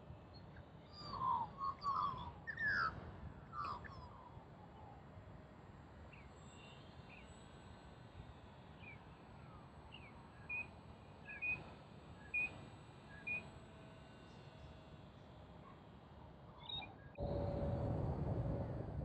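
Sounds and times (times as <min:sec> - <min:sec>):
faint outdoor background noise: 0:00.0 - 0:19.0.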